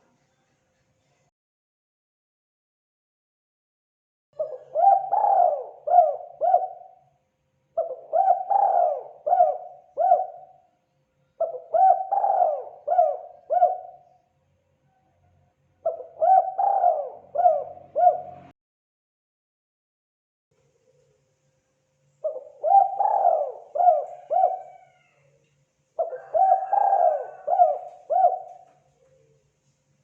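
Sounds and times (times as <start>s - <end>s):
dove cooing: 4.4s - 7.0s, 7.8s - 10.6s, 11.4s - 14.2s, 15.8s - 18.5s, 22.2s - 25.3s, 26.0s - 29.4s.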